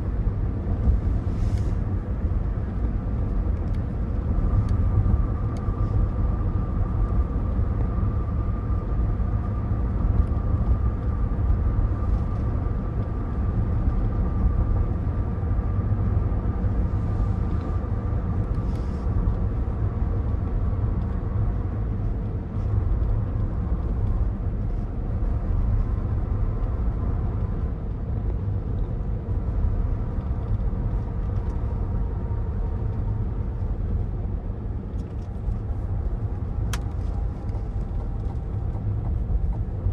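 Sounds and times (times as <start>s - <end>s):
low rumble of road and engine: 0.0s - 39.9s.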